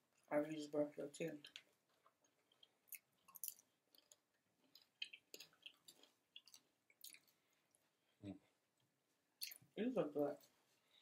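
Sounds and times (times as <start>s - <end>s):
faint chewing: 1.3s - 9.7s.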